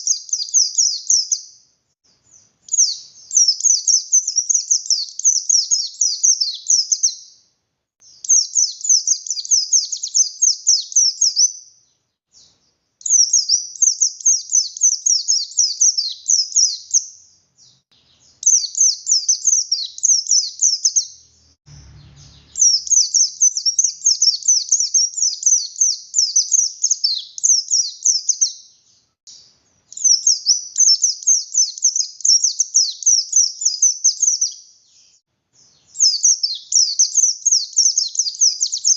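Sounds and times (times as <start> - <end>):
bird twittering song: 0.0 - 38.9
low thump: 21.7 - 22.6.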